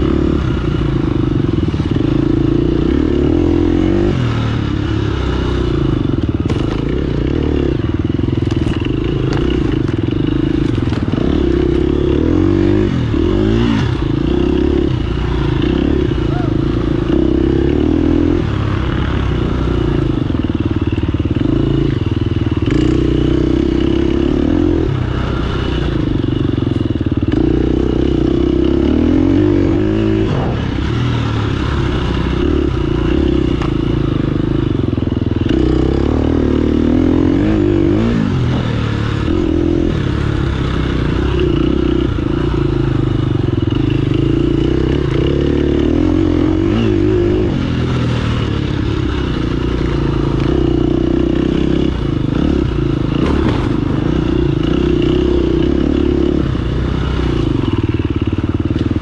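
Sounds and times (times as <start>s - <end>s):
dirt bike engine revving: 0.0s - 59.0s
bike clattering over rough ground: 53.1s - 54.6s.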